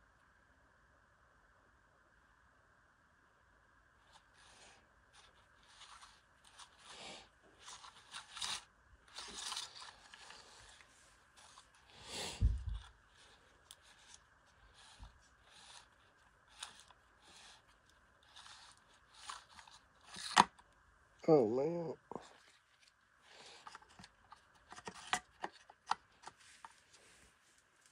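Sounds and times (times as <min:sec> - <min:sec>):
trimmer line scraping on spool: 0:04.1 - 0:20.6.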